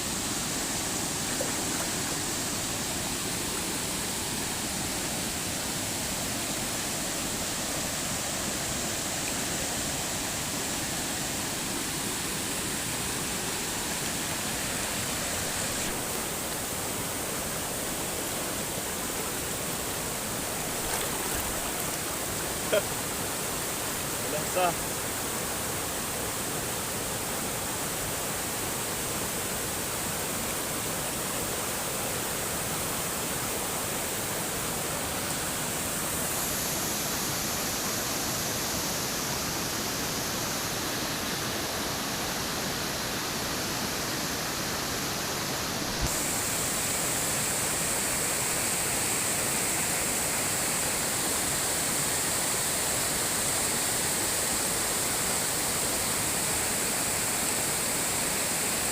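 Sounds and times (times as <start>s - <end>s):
water rushing: 0.0s - 58.9s.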